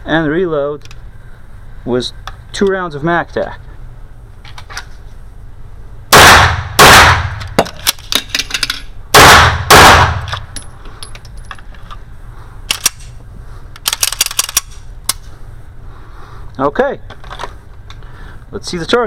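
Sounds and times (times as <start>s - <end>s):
pistol shots: 6.1s - 7.5s, 9.1s - 10.4s
magazine reload clicks: 12.7s - 13.2s, 13.8s - 15.3s.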